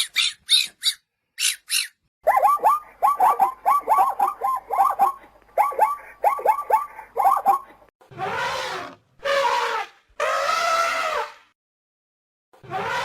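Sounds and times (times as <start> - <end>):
high-pitched squeaky animal calls: 0.0 - 7.7.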